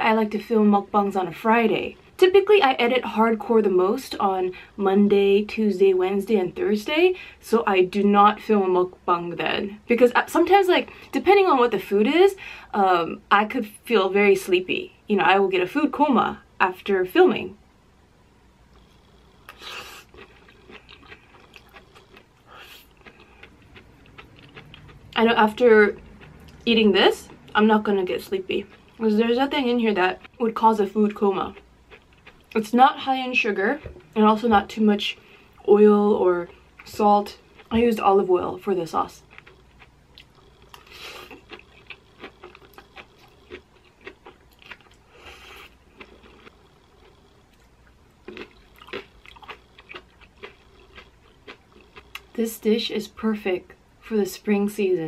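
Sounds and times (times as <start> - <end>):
soft crunchy chewing: 18.7 - 52.6.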